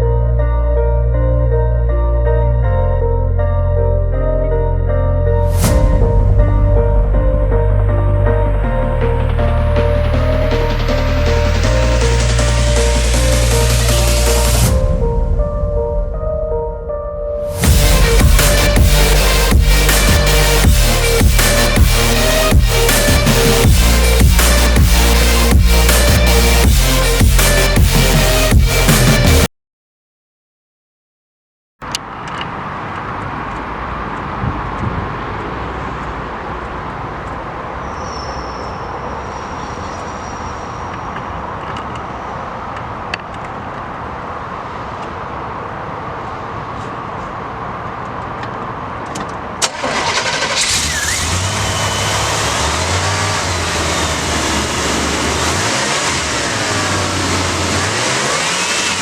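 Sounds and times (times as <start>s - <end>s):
pickup truck engine revving: 17.6s - 29.5s, 49.7s - 59.0s.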